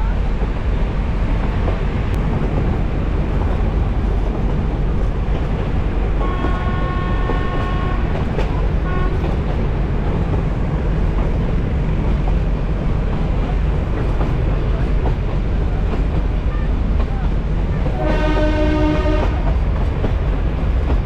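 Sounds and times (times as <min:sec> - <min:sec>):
diesel train rumbling: 0:00.0 - 0:21.0
locomotive horn: 0:06.2 - 0:08.2, 0:08.8 - 0:09.4, 0:18.0 - 0:19.5.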